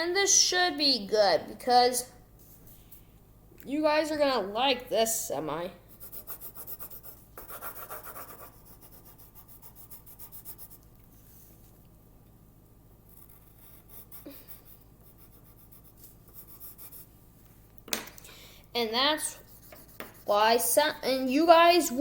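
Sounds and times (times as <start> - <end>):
pencil scribbling on paper: 5.9 - 10.8, 13.1 - 17.1, 19.1 - 22.0.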